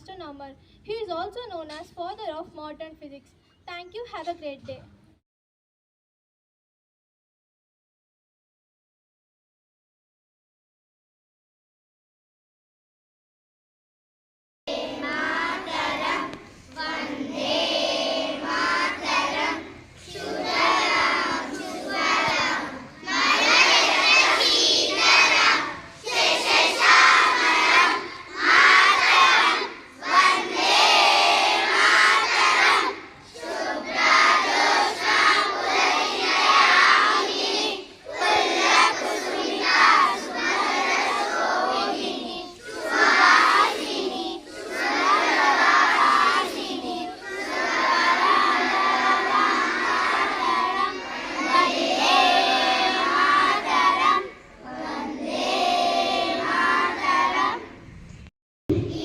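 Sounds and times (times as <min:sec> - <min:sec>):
crowd of children chanting: 0:14.7 - 0:57.8, 0:58.7 - 0:59.0.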